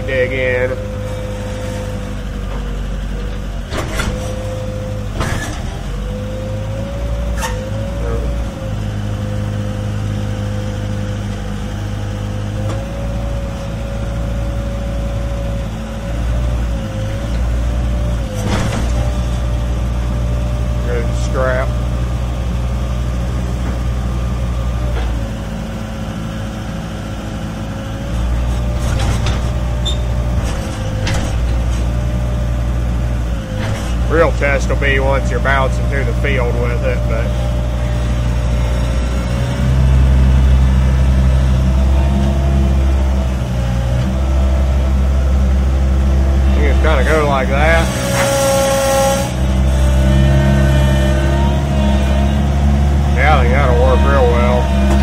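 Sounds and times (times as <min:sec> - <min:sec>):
skid steer engine running: 0:00.0 - 0:55.0
steady whine: 0:44.7 - 0:49.4, 0:52.3 - 0:55.0.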